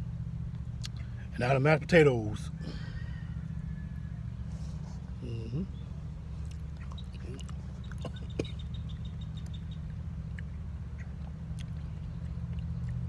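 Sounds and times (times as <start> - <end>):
steady low hum: 0.0 - 13.0
person chewing: 0.8 - 1.1, 6.3 - 8.5, 9.4 - 13.0
wet mouth clicks: 0.8 - 1.1, 6.4 - 8.6, 10.2 - 13.0.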